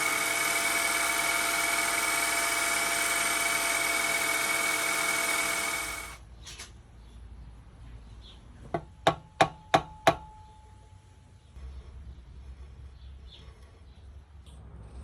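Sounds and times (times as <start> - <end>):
machine running: 0.0 - 6.2.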